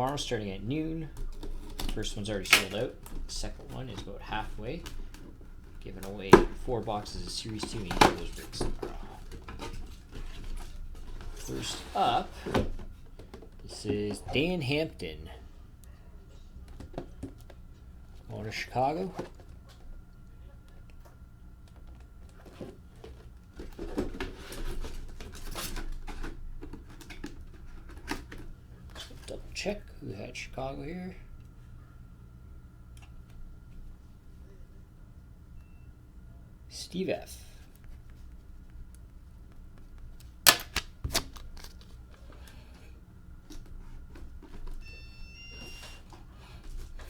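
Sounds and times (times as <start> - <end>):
low steady hum: 0.0 - 47.0
packaging crinkling and rustling: 0.1 - 14.2, 39.7 - 42.8.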